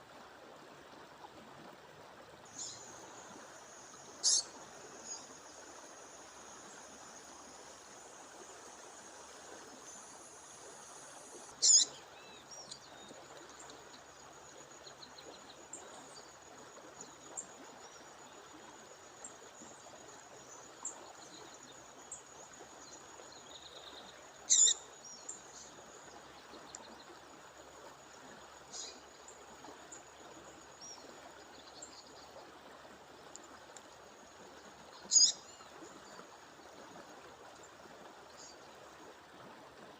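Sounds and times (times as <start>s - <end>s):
songbird calling: 2.5s - 3.4s, 4.0s - 5.5s, 9.8s - 13.7s, 23.4s - 25.8s, 28.7s - 29.0s, 34.9s - 35.7s.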